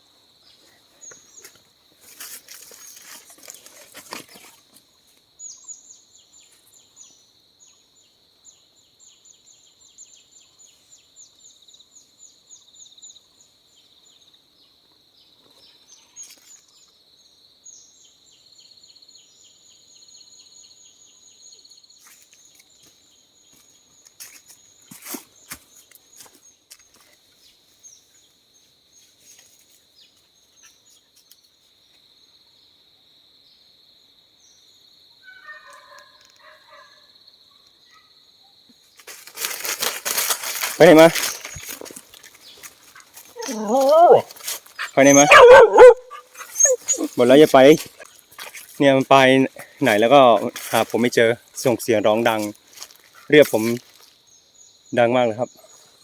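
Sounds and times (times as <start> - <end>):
insects droning: 0.0 - 56.0
rustling: 1.4 - 4.8, 39.0 - 48.8
rapid insect trilling: 39.3 - 55.6.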